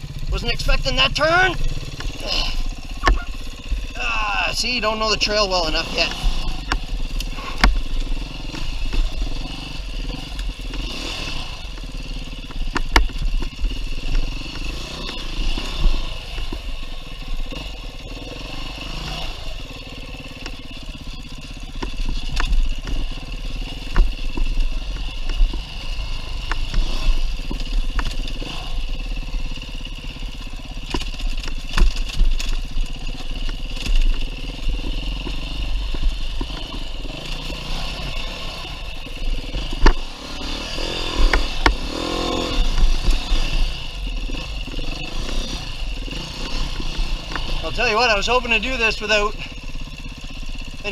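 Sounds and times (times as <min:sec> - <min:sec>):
dirt bike engine revving: 0:00.0 - 0:50.9
sharp knocks and clatter: 0:30.8 - 0:34.3.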